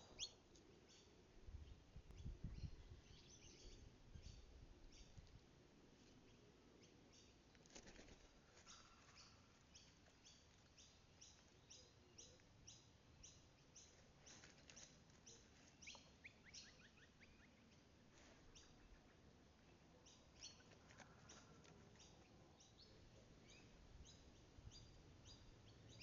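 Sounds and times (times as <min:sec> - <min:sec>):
faint high bird calls: 0:06.3 - 0:26.0.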